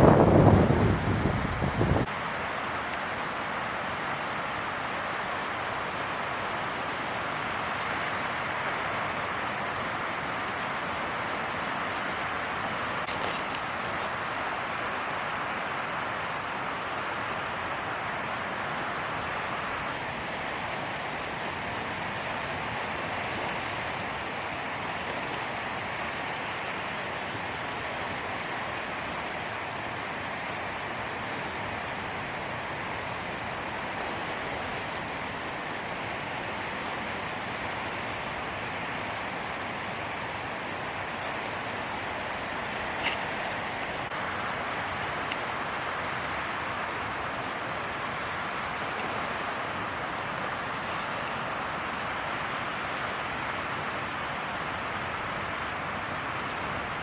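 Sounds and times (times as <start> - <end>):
ocean surf: 0.0 - 57.0
wind: 0.0 - 57.0.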